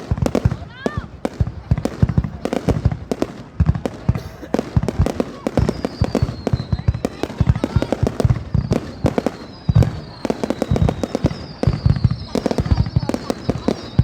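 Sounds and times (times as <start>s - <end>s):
deep fireworks booms: 0.0s - 14.0s
fireworks bangs and pops: 0.0s - 14.0s
high descending whistles: 8.6s - 14.0s.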